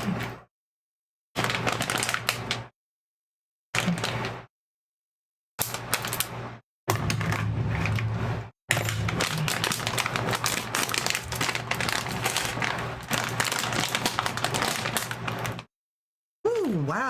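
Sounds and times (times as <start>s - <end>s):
plastic bag crinkling: 8.9s - 15.7s.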